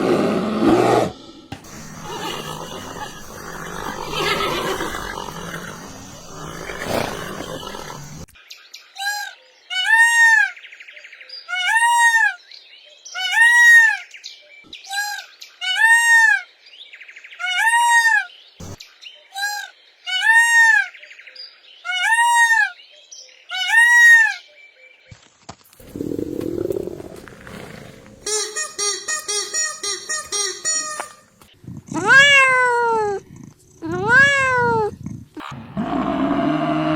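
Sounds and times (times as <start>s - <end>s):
bird calling arching note: 1.2s - 8.3s, 25.8s - 31.3s.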